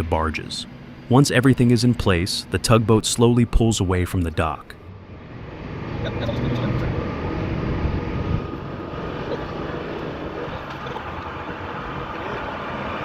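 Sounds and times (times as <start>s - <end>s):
boat diesel engine rumbling: 0.0s - 13.0s.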